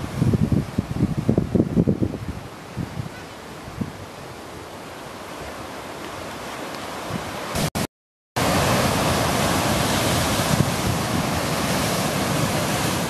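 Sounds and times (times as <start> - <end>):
wind buffeting microphone: 0.0 - 4.2, 8.4 - 13.0
ocean surf breaking over rocks: 8.4 - 13.0.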